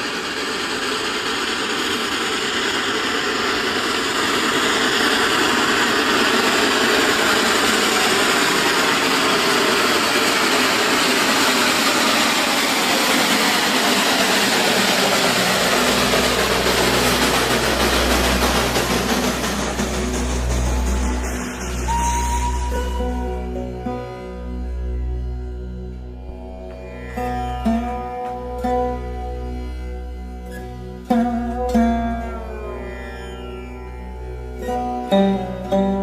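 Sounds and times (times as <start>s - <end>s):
dense rushing noise: 0.0s - 23.7s
vehicle engine running: 0.0s - 33.1s
low musical notes: 14.3s - 36.0s.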